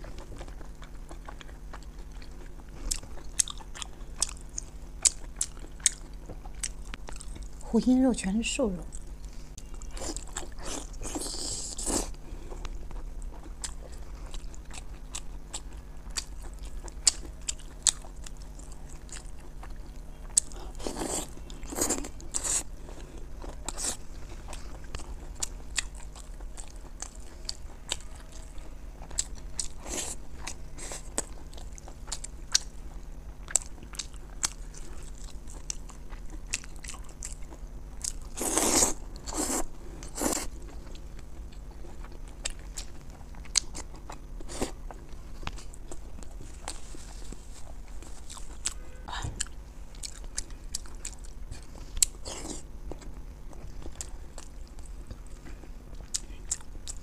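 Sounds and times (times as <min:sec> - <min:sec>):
person biting and chewing: 0:33.5 - 0:48.8.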